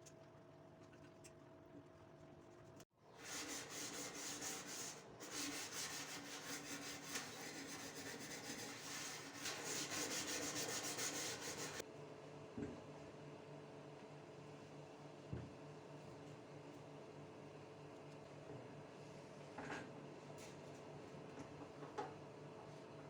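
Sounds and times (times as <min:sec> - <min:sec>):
scrubbing kitchen surface: 0:03.2 - 0:11.8.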